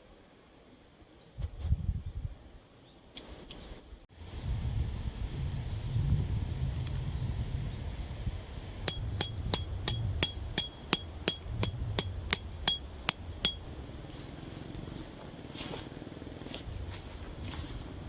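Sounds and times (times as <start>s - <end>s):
wind rumble on microphone: 1.4s - 2.6s, 4.1s - 18.0s
hammer striking metal: 8.9s - 13.7s.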